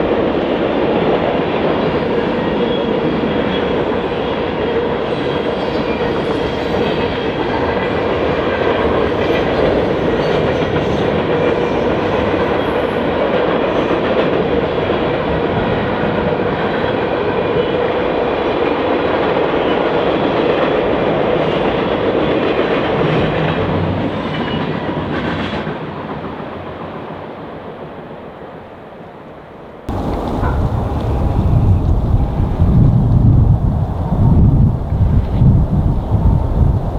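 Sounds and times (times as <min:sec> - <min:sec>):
train wheels rolling on rails: 0:29.9 - 0:36.9
wind buffeting microphone: 0:29.9 - 0:36.9.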